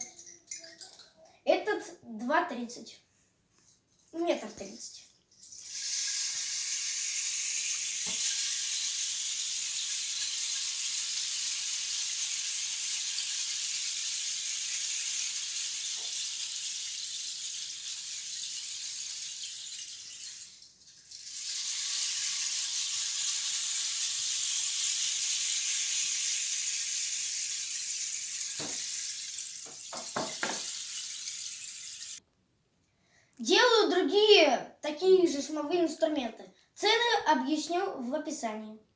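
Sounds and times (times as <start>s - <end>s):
rain stick rushing hiss: 5.6s - 32.2s.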